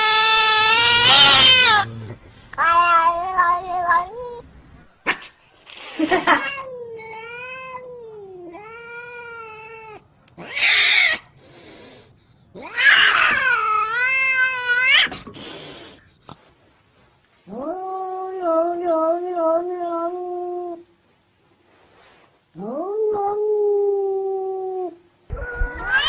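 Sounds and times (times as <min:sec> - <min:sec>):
cat yowling: 0:00.0 - 0:01.9, 0:06.3 - 0:11.3, 0:12.6 - 0:15.1, 0:22.6 - 0:26.0.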